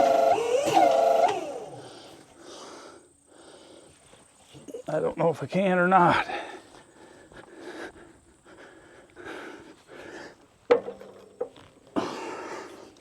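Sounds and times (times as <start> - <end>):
man breathing hard: 1.7 - 4.2, 6.2 - 10.6, 12.0 - 13.0.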